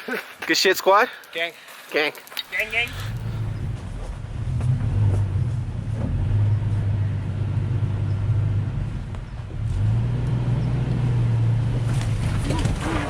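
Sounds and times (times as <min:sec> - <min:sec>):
truck engine running at low revs: 0:02.9 - 0:13.0.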